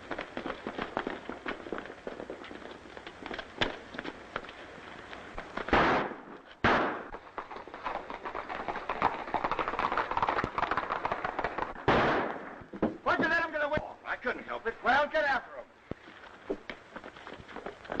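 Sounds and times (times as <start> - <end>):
galloping hoofbeats: 0.0 - 5.8, 6.4 - 11.9, 15.9 - 18.0
gunshots: 5.7 - 7.7, 11.2 - 12.7.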